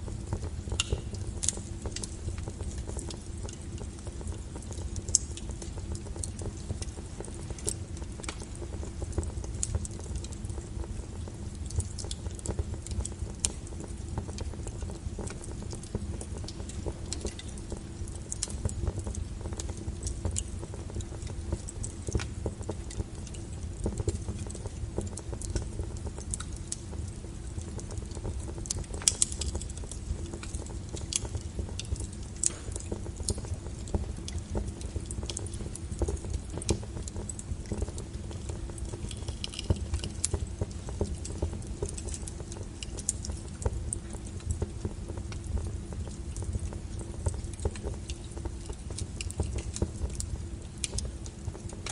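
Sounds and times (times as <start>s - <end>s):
low rumble of flames: 0.0s - 51.9s
wood fire crackling and popping: 0.0s - 51.9s.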